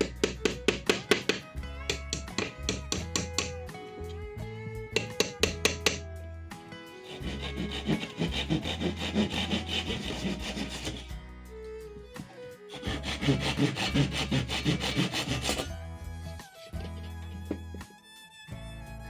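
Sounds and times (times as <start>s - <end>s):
hand tool rasping on wood: 0.0s - 3.5s, 5.0s - 6.0s, 7.0s - 11.1s, 12.7s - 15.7s
quiet background music: 0.0s - 19.0s.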